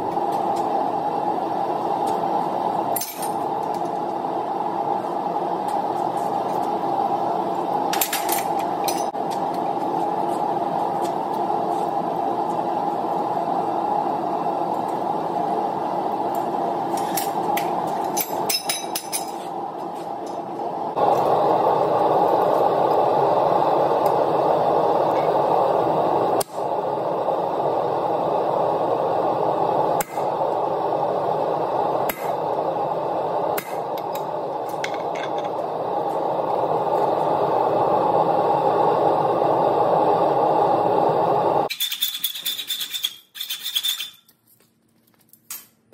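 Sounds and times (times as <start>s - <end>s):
forge rushing noise: 0.0s - 41.7s.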